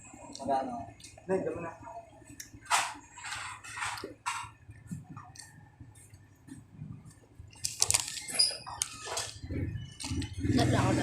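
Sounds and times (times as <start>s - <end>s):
eating and food-handling noises: 0.0s - 11.0s
crackly clicks and rustles: 2.3s - 10.4s.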